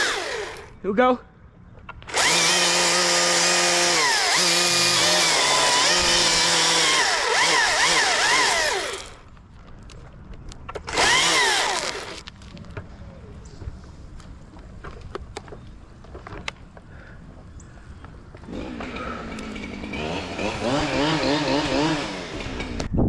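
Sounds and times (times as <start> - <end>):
chainsaw revving: 0.0 - 0.8, 2.1 - 9.2, 10.9 - 12.2, 18.4 - 22.9.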